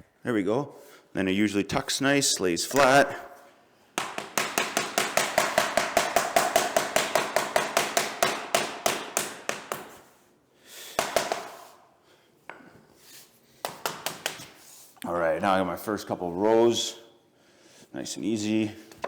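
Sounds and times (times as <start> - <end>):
hammer tapping flooring planks: 4.0 - 10.2, 10.8 - 11.8, 13.6 - 14.6.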